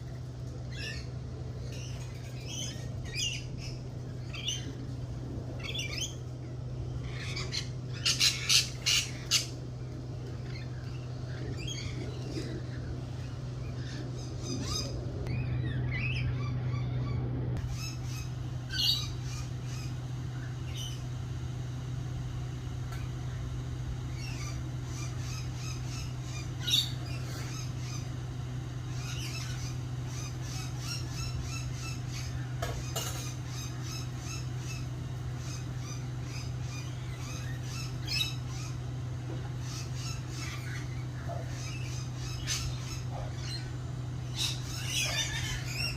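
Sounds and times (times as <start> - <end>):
garden birds squawking and chirping: 0.0 - 45.9
steady low hum: 0.0 - 45.9.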